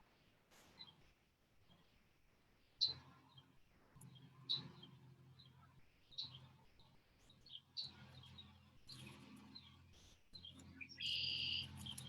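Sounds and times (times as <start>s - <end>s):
birds chirping faintly: 2.8s - 12.0s.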